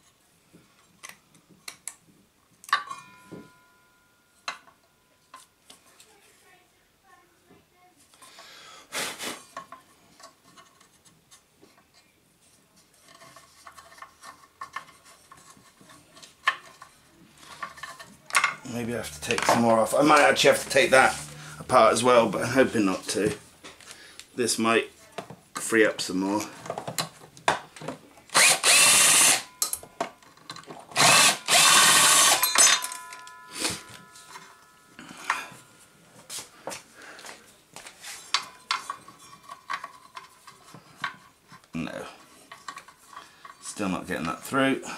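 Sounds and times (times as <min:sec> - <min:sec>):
clicks and rattles of parts: 0:12.8 - 0:19.6, 0:26.5 - 0:34.6, 0:37.2 - 0:44.4
loud scrape: 0:18.7 - 0:22.0
power drill running: 0:28.3 - 0:29.5, 0:31.0 - 0:32.5.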